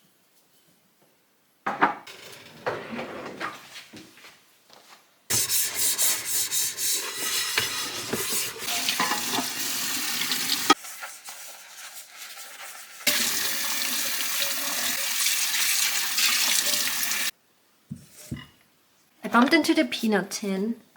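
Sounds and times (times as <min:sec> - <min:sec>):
dishes being washed: 0:05.3 - 0:17.3
tap water running into sink: 0:07.2 - 0:10.8, 0:13.1 - 0:17.3.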